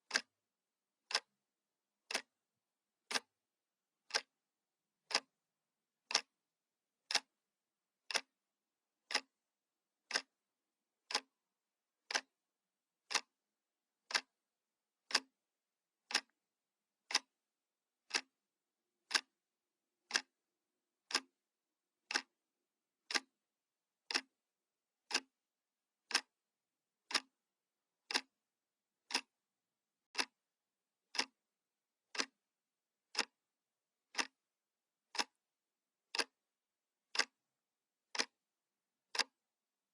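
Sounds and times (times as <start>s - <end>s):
clock ticking: 0.0s - 0.3s, 1.0s - 1.3s, 2.1s - 2.4s, 3.0s - 3.3s, 4.0s - 4.3s, 5.0s - 5.4s, 6.0s - 6.4s, 7.1s - 7.4s, 8.1s - 8.3s, 9.1s - 9.4s, 10.0s - 10.4s, 11.0s - 11.4s, 12.1s - 12.3s, 13.1s - 13.3s, 14.1s - 14.3s, 15.0s - 15.4s, 16.0s - 16.4s, 17.0s - 17.3s, 18.1s - 18.4s, 19.1s - 19.4s, 20.1s - 20.4s, 21.1s - 21.4s, 22.0s - 22.3s, 23.1s - 23.3s, 24.1s - 24.3s, 25.1s - 25.3s, 26.1s - 26.4s, 27.0s - 27.4s, 28.1s - 28.4s, 29.1s - 29.3s, 30.1s - 30.4s, 31.1s - 31.4s, 32.1s - 32.4s, 33.1s - 33.4s, 34.1s - 34.4s, 35.1s - 35.4s, 36.1s - 36.4s, 37.1s - 37.4s, 38.1s - 38.4s, 39.1s - 39.4s.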